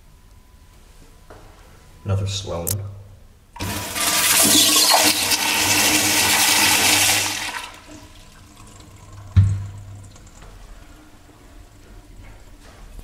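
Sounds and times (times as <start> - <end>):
toilet flushing: 3.6 - 12.2.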